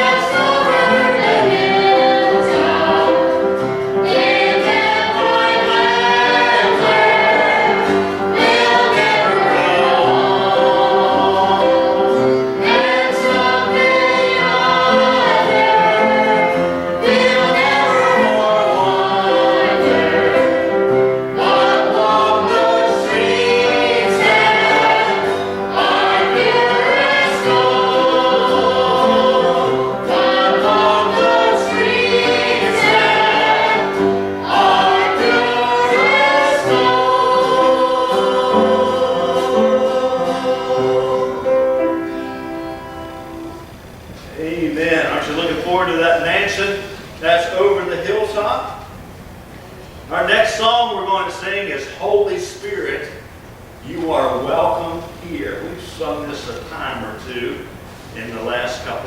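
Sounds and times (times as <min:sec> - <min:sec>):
group singing gospel in harmony: 0:00.0 - 0:43.7.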